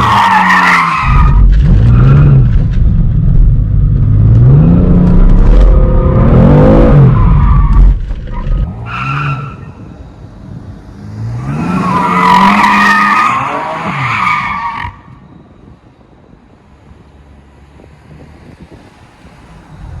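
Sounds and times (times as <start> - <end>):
car engine revving: 1.0 - 7.3.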